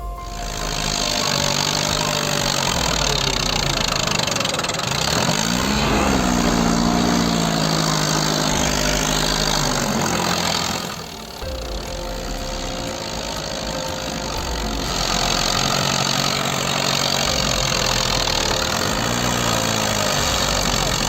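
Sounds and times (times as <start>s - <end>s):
tractor engine revving: 0.0s - 21.0s.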